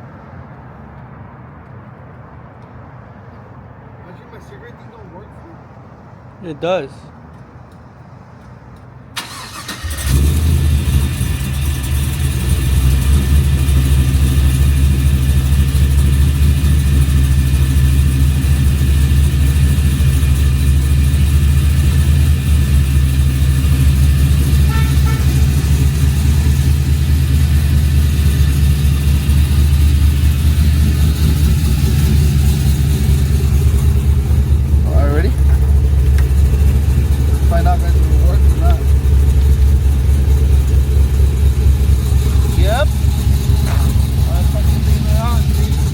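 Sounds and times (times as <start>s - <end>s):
truck engine droning: 9.2s - 45.9s.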